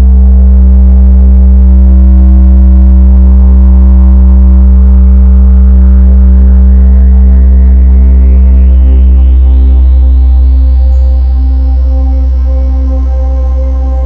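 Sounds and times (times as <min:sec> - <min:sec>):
ambient music drone: 0:05.1 - 0:14.0.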